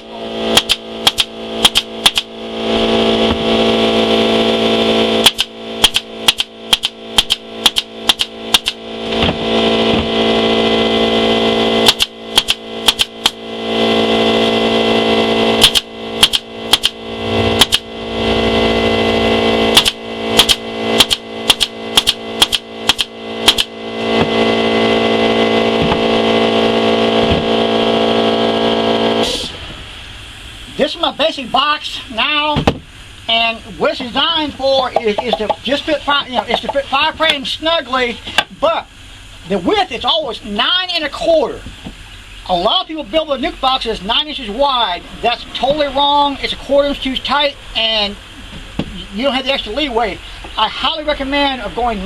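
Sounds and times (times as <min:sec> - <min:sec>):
steady machine hum: 0:00.0 - 0:52.0
staple gun firing into wood: 0:00.6 - 0:02.3, 0:05.2 - 0:08.8, 0:11.9 - 0:13.4, 0:15.6 - 0:17.0, 0:19.8 - 0:23.7.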